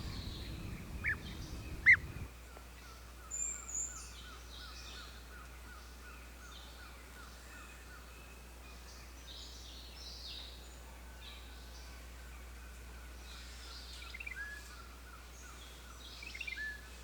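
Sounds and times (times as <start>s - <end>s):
higher bird calls: 0.0s - 2.2s
steady low hum: 0.0s - 2.3s.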